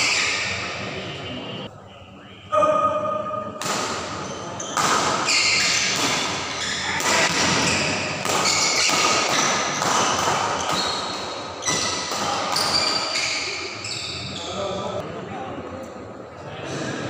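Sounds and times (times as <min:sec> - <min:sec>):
busy echoing hall: 0:00.0 - 0:17.0
rackets hitting shuttlecock: 0:03.6 - 0:13.2.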